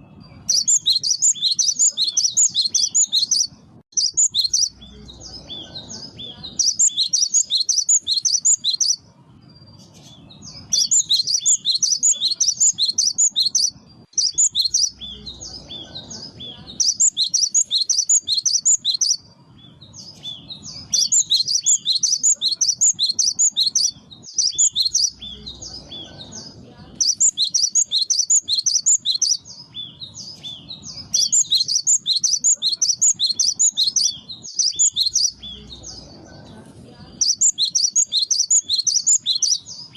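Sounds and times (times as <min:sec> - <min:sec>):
bird singing rapid high notes: 0:00.0 - 0:36.1, 0:37.1 - 0:39.9.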